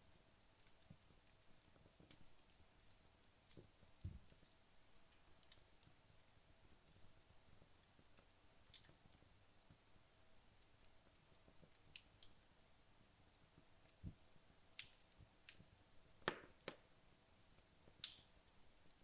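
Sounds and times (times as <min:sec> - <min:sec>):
soft hiss: 0:00.0 - 0:19.0
wood fire crackling: 0:00.0 - 0:19.0.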